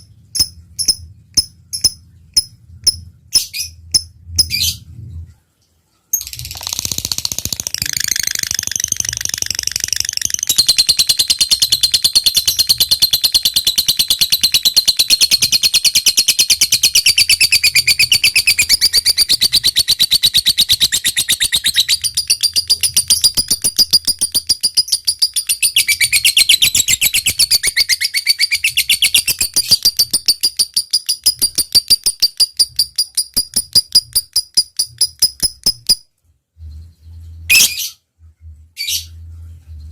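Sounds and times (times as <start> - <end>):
lovebird clicking calls: 0.4 - 4.6, 6.2 - 36.0
lovebird chattering trill: 6.3 - 36.0.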